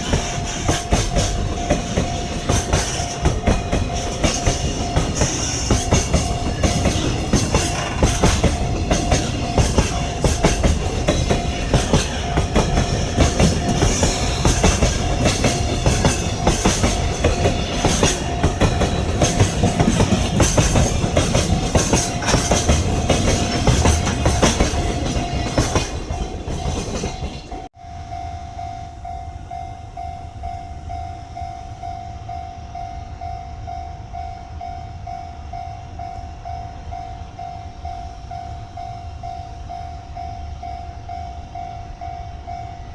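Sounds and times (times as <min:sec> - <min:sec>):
train wheels clattering: 0:00.0 - 0:27.7
steady high tone: 0:00.0 - 0:42.9.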